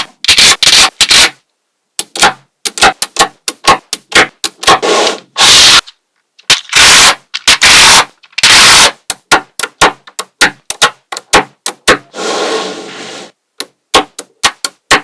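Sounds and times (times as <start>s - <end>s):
magnetic balls clicking together: 2.0s - 4.8s, 6.4s - 12.1s, 13.6s - 15.0s
loud hissing bursts: 4.8s - 5.8s, 12.1s - 13.3s.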